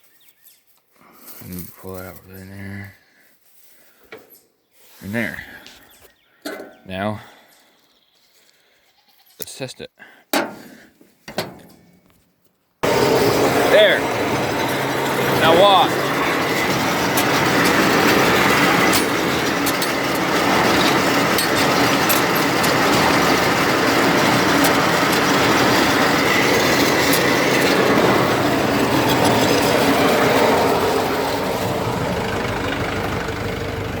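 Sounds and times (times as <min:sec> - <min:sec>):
hay baler clattering: 0:12.8 - 0:34.0
sharp mechanical clicks: 0:14.0 - 0:31.0.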